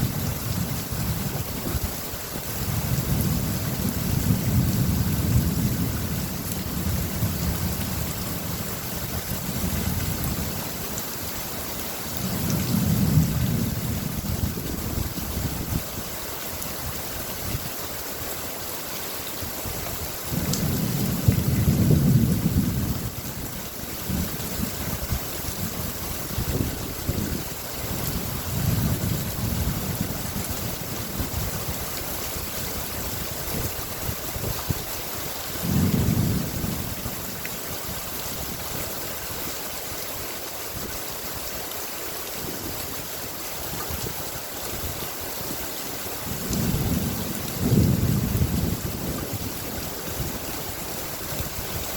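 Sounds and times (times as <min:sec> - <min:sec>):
steady rain falling: 0:00.0 - 0:51.9
thunder rumbling: 0:02.8 - 0:08.6, 0:12.2 - 0:15.9, 0:20.3 - 0:23.2, 0:35.6 - 0:37.1, 0:46.3 - 0:50.3.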